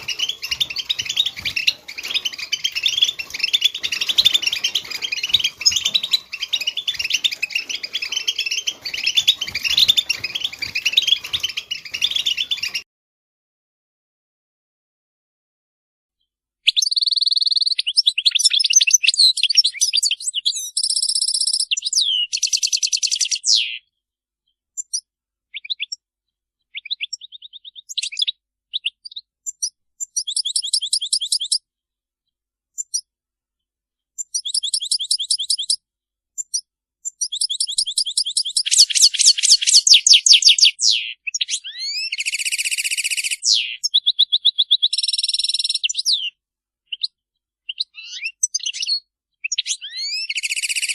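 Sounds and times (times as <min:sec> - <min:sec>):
finches twittering: 0:00.0 - 0:12.8, 0:37.1 - 0:46.3, 0:47.7 - 0:50.9.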